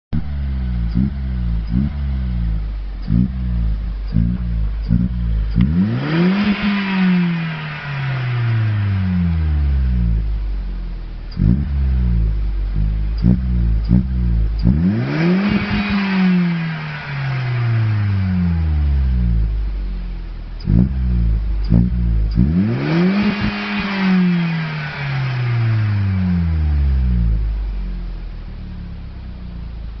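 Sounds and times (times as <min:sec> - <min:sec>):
car engine revving: 0:00.1 - 0:30.0.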